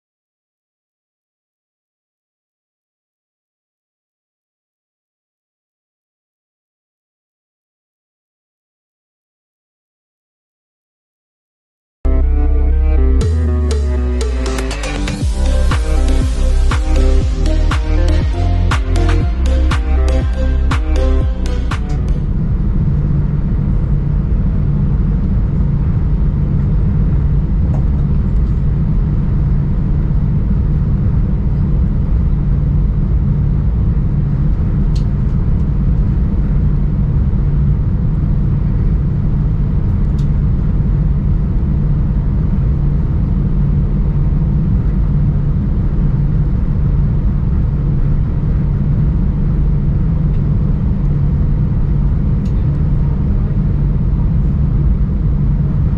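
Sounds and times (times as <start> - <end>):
low mechanical rumble: 12.1 - 55.9.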